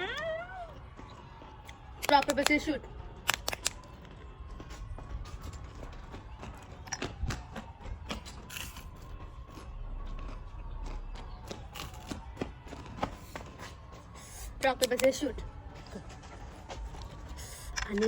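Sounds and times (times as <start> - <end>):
person biting and eating: 8.1 - 9.7.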